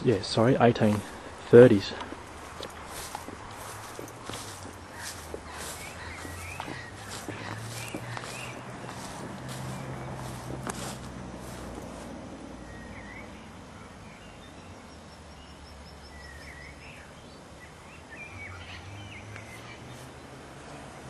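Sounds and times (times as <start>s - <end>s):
small birds chirping: 0.0s - 21.0s
high bird trill: 2.2s - 10.5s.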